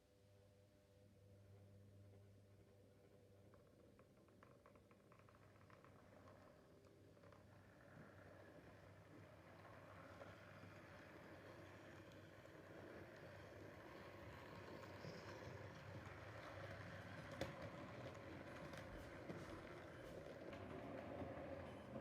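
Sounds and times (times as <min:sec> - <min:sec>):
model train rumbling on track: 0:07.6 - 0:22.0.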